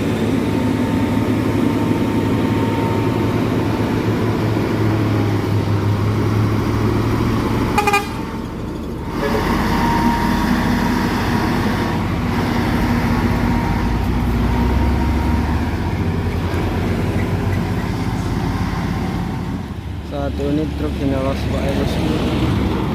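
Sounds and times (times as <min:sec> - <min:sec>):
heavy truck engines under load: 0:00.0 - 0:22.9
short horn toot: 0:07.8 - 0:08.3.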